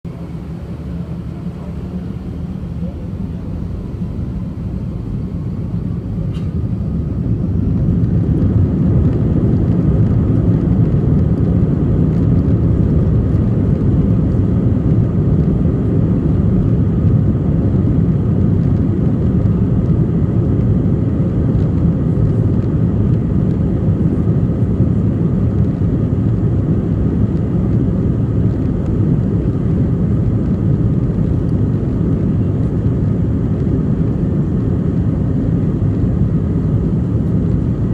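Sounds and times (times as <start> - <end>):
jet engines rumbling: 0.0 - 37.9
faint high whine: 0.1 - 7.6.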